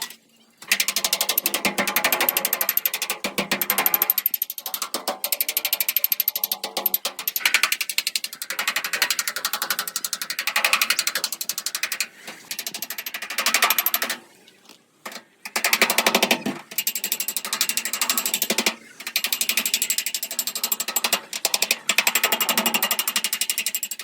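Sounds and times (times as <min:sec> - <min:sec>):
rapid mechanical clicking of tool: 0:00.0 - 0:14.2, 0:15.0 - 0:24.0.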